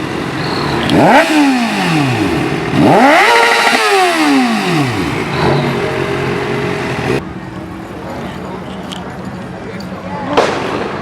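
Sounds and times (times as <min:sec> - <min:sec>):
vehicle engine revving: 0:00.0 - 0:07.2.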